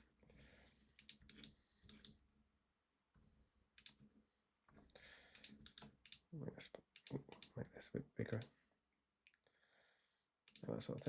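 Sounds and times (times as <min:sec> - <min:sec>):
computer mouse and keyboard clicks: 0:01.0 - 0:02.2, 0:03.8 - 0:04.1, 0:04.7 - 0:06.3.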